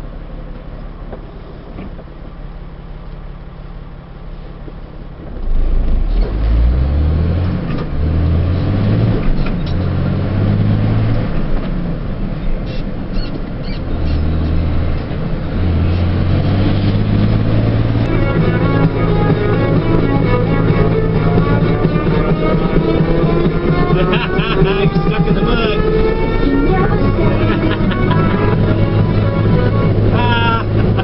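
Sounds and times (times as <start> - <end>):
truck engine droning: 0.0 - 31.0
loud low stepped tone: 13.9 - 31.0.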